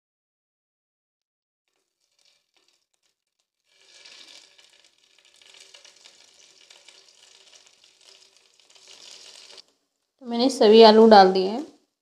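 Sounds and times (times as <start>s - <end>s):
potatoes sizzling in a frying pan: 1.7s - 9.8s.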